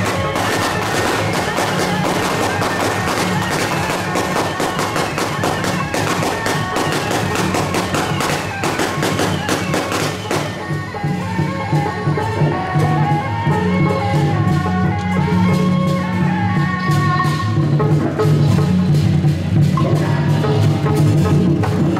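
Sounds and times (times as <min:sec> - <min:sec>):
firecrackers popping: 0:00.0 - 0:10.8
procession music with drums: 0:00.0 - 0:21.9.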